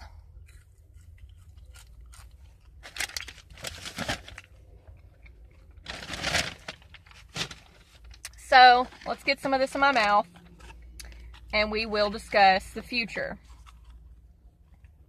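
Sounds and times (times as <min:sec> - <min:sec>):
chewing fries with crunches: 0:00.0 - 0:07.3, 0:13.4 - 0:15.0.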